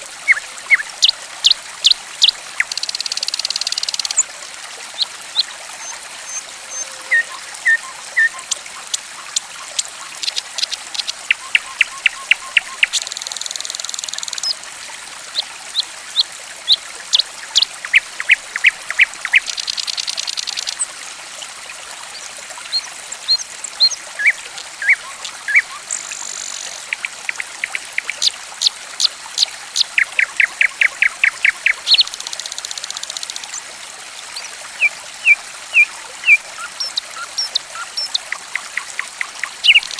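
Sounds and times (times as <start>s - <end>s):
trickle of running water: 0.0s - 39.9s
songbird chirping: 5.0s - 14.6s, 34.8s - 39.9s.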